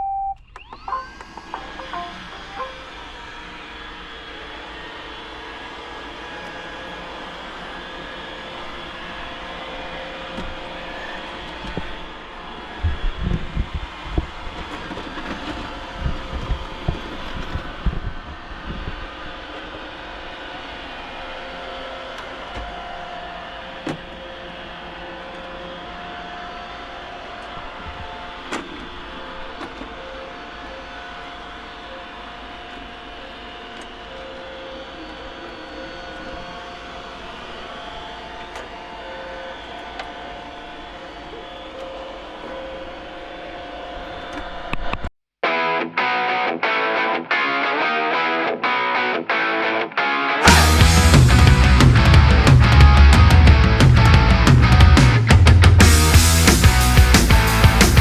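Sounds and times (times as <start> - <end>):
robot vacuum motor hum and whine: 0.4 - 44.9
robot vacuums whirring: 0.5 - 20.8.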